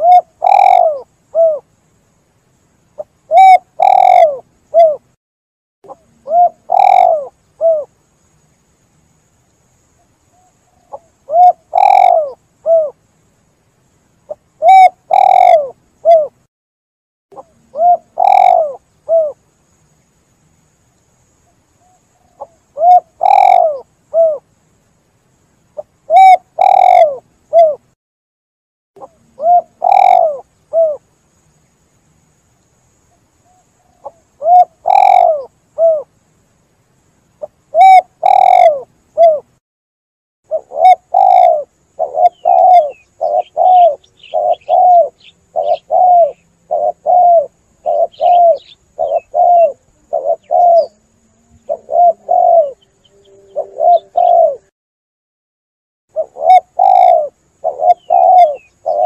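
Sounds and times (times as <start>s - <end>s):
dove cooing: 0.0s - 1.7s, 3.0s - 5.1s, 5.9s - 7.9s, 10.4s - 13.0s, 14.3s - 16.4s, 17.4s - 19.4s, 21.8s - 24.4s, 25.8s - 27.8s, 29.0s - 31.0s, 33.5s - 36.1s, 37.4s - 39.5s, 40.5s - 54.7s, 56.1s - 59.0s
faint high chirping: 0.0s - 5.2s, 5.8s - 16.5s, 17.3s - 28.0s, 29.0s - 39.6s, 40.5s - 54.7s, 56.1s - 59.0s.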